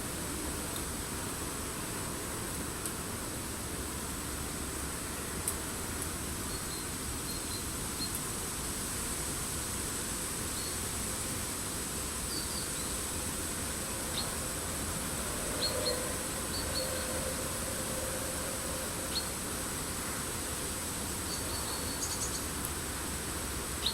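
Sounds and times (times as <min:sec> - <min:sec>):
high-pitched forest hiss: 0:00.0 - 0:23.9
songbirds high call notes: 0:14.1 - 0:14.4, 0:15.5 - 0:17.3, 0:19.0 - 0:19.4, 0:21.3 - 0:22.5.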